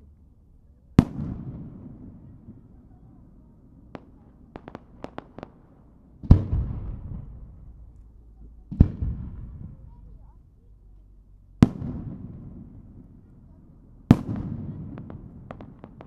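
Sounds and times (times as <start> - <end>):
sharp firework cracks: 3.9 - 10.0, 14.1 - 16.0.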